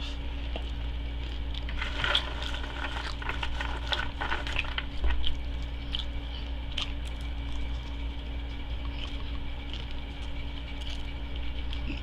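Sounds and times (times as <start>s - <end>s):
chewing mouth sounds: 5.2s - 12.0s.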